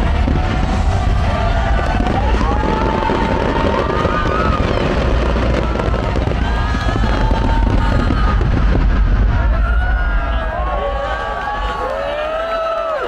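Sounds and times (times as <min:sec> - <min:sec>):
fireworks popping and banging: 0:00.0 - 0:10.1.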